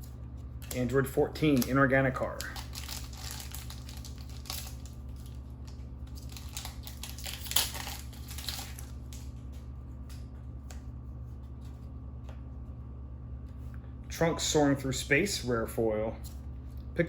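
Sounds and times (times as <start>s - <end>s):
cards being handled: 0.0s - 12.5s
foil wrapper crinkling and tearing: 0.6s - 9.3s.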